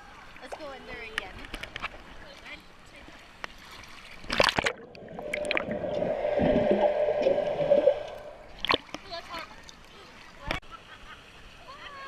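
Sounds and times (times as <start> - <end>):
rushing gurgling water: 3.6 - 9.0
water splash: 3.6 - 9.1.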